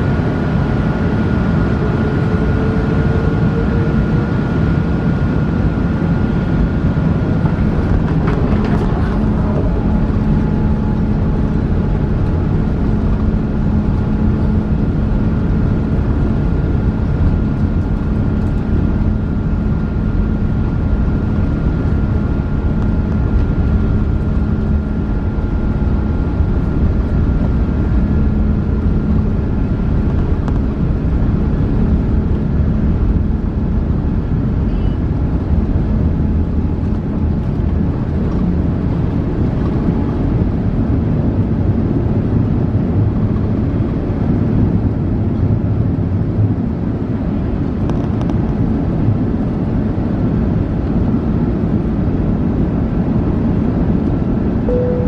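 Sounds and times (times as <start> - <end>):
airplane engine rumble in cabin: 0.0 - 55.0
thin whine: 54.6 - 55.0.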